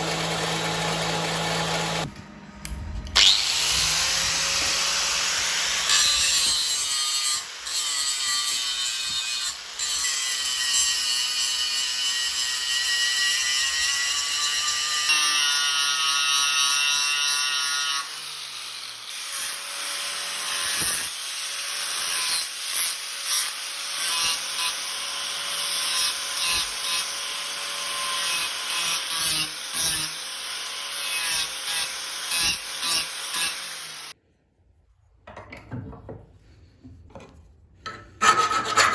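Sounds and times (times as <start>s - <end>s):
power tool running: 0.0s - 6.6s.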